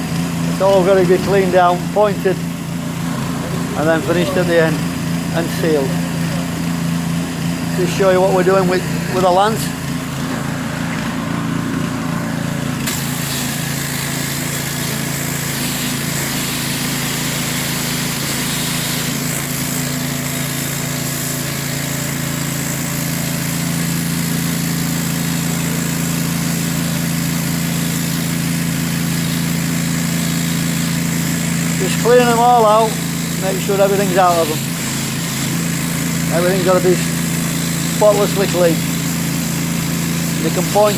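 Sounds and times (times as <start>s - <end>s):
pressure washer engine running: 0.0s - 40.9s
water jet hissing: 12.7s - 40.9s.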